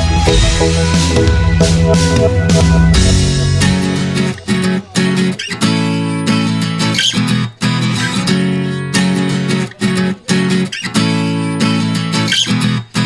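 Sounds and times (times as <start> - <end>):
strummed acoustic guitar chords: 0.0 - 12.2.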